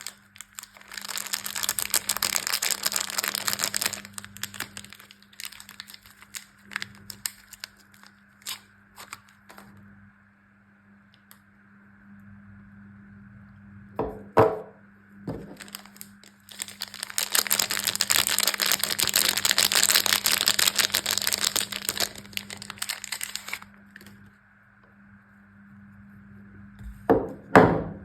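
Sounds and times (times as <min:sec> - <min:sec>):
packaging tearing and crinkling: 0:00.0 - 0:09.6, 0:15.4 - 0:24.1.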